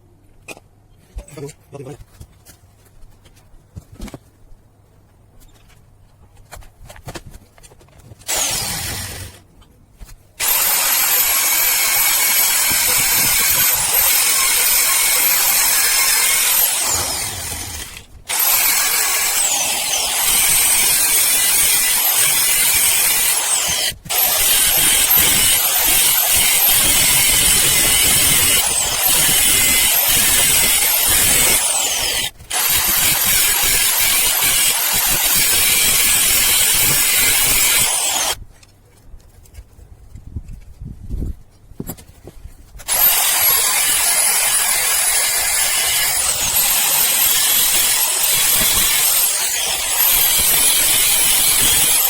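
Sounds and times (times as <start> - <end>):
power tool grinding steel: 8.3 - 9.4, 10.4 - 38.4, 42.9 - 52.0.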